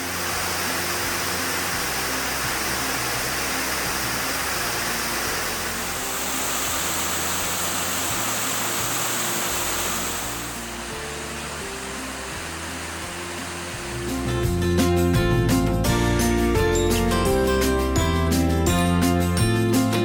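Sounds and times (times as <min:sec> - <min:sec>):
rushing water: 0:00.0 - 0:14.6
music with low held notes: 0:00.0 - 0:20.0.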